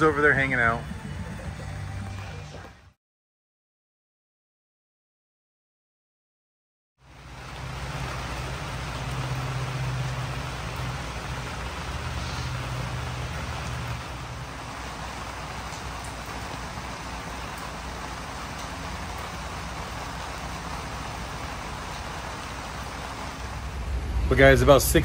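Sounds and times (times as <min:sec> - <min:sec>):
rain hissing on pavement: 0:07.0 - 0:25.0
low hum: 0:23.1 - 0:25.0.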